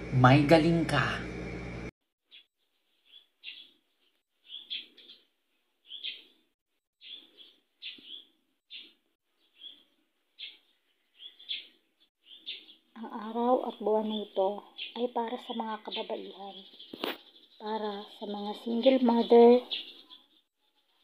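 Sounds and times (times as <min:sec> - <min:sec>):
faint bird chirping: 0:02.3 - 0:21.0.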